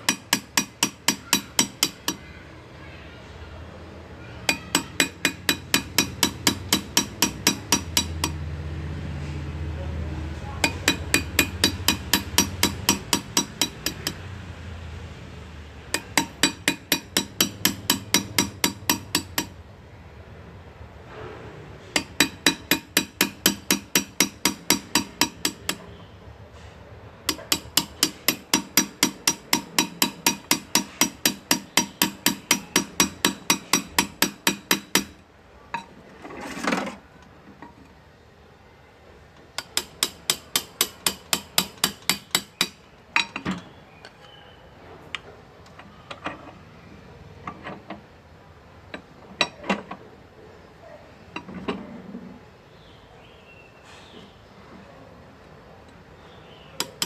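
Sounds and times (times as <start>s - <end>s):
hammer tapping graver into metal: 0.0s - 2.2s, 4.5s - 8.4s, 10.6s - 14.2s, 15.9s - 19.6s, 21.9s - 25.9s, 27.3s - 35.2s, 39.6s - 43.6s, 56.8s - 57.0s
brief scraping: 21.1s - 21.9s.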